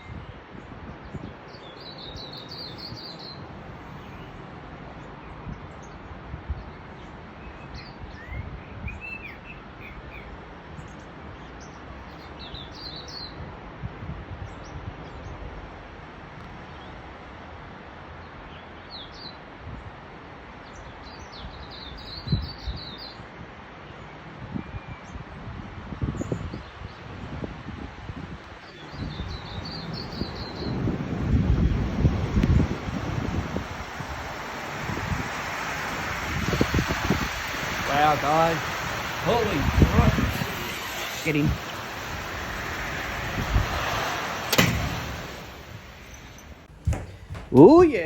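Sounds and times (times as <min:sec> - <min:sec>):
wind buffeting microphone: 0:00.0 - 0:04.2, 0:24.4 - 0:48.0
small birds chirping: 0:01.2 - 0:04.4, 0:10.9 - 0:13.4, 0:28.4 - 0:48.0
wind rushing: 0:27.4 - 0:48.0.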